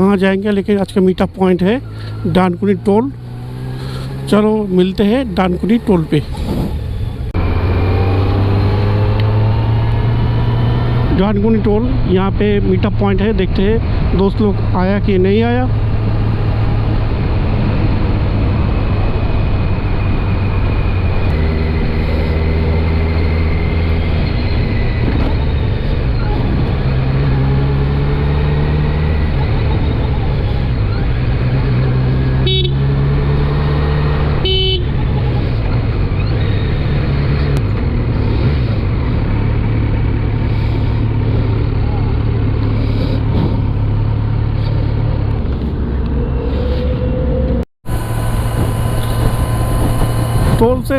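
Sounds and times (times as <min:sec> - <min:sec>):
vehicles passing: 0:00.0 - 0:50.9
vehicle horn honks: 0:32.4 - 0:32.8, 0:34.4 - 0:34.9.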